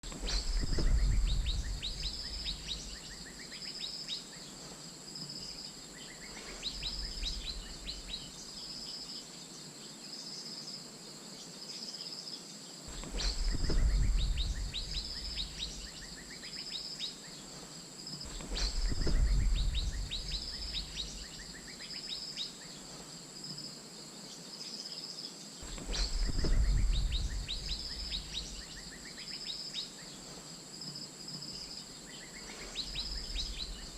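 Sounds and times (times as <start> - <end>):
high insect-like hum: 0.0 - 33.9
low rumble: 0.1 - 3.1, 12.9 - 16.0, 18.3 - 21.4, 25.6 - 28.9.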